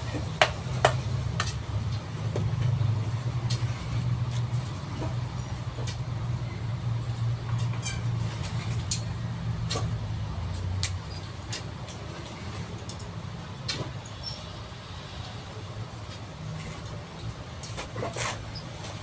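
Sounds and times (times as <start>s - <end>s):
low engine hum: 0.0s - 19.0s
sharp clicks and knocks: 0.2s - 2.8s.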